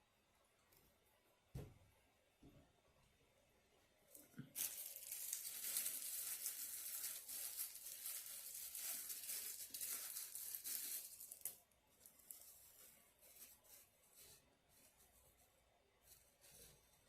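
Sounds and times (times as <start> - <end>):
food packaging crinkling: 4.2 - 13.9.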